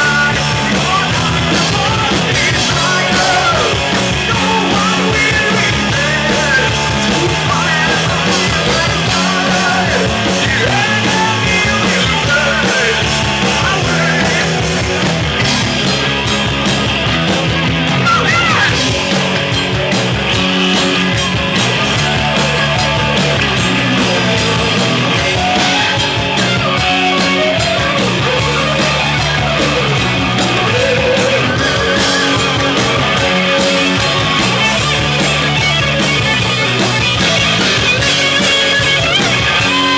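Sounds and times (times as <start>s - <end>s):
person singing: 0.0s - 14.8s
heavy metal band playing live: 0.0s - 39.9s.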